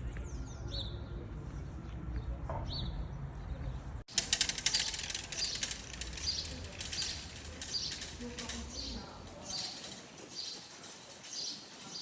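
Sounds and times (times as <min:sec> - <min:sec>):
dense crackling chatter: 0:04.1 - 0:12.0
small birds chirping: 0:04.7 - 0:12.0.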